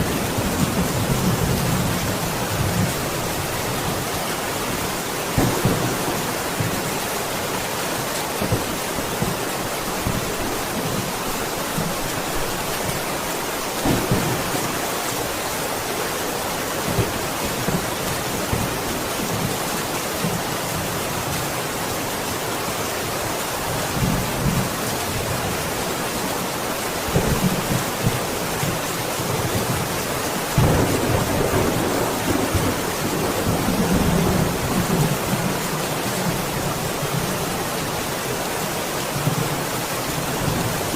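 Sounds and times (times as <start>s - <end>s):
heavy rain falling: 0.0s - 40.9s
thunder rumbling: 5.4s - 7.0s, 13.8s - 15.0s, 30.6s - 35.4s.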